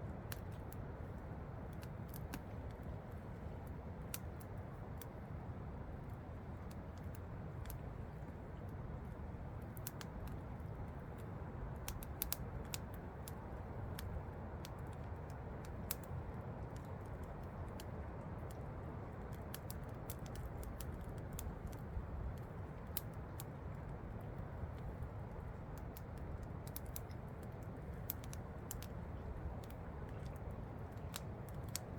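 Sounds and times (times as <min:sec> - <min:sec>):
campfire crackling and popping: 0:00.1 - 0:31.9.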